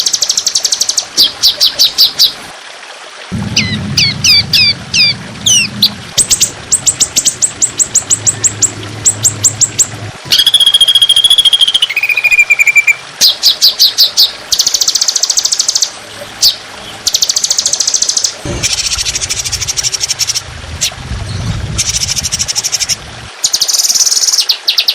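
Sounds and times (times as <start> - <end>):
low hum: 3.3 - 10.5, 18.4 - 23.3
buzzy bird trill: 3.4 - 13.0
songbird chirps: 3.4 - 19.0.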